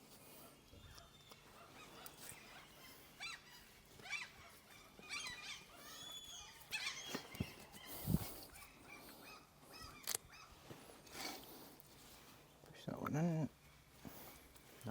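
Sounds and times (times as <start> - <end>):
high-pitched animal calls: 0.9 - 10.6.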